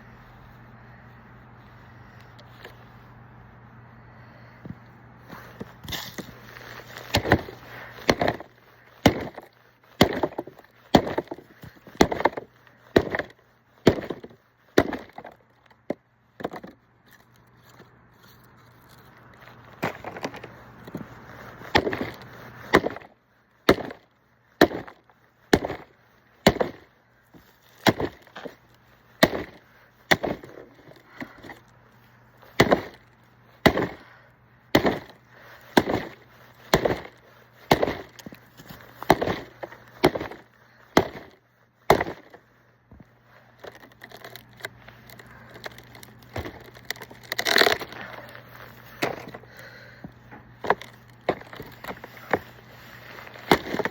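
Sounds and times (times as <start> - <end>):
axe chopping firewood: 5.5 - 16.8, 19.8 - 21.0, 21.6 - 26.9, 27.7 - 31.7, 32.5 - 42.4, 45.2 - 53.9.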